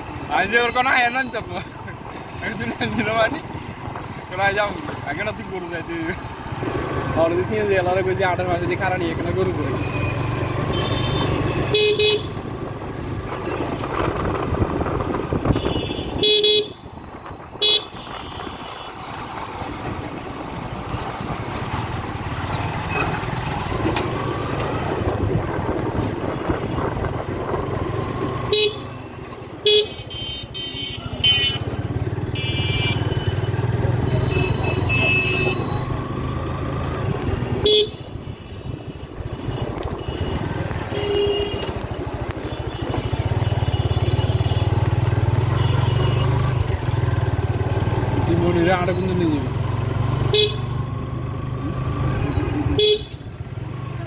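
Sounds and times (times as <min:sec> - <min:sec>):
motorcycle engine and road noise: 0:00.0 - 0:54.0
horn honks: 0:09.8 - 0:12.4, 0:15.4 - 0:17.0, 0:17.6 - 0:19.0, 0:28.5 - 0:29.0, 0:29.6 - 0:35.9, 0:37.5 - 0:46.6, 0:50.2 - 0:50.8, 0:52.6 - 0:53.3.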